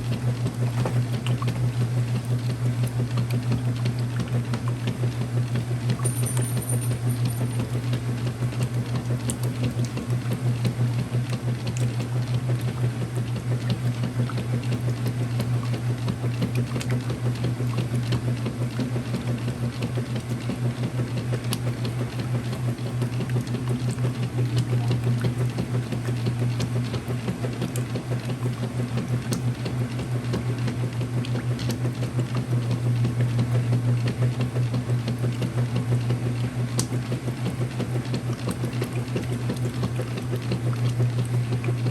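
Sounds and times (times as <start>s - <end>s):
water sloshing: 0.0s - 4.8s, 36.8s - 41.9s
washing machine humming: 0.0s - 41.9s.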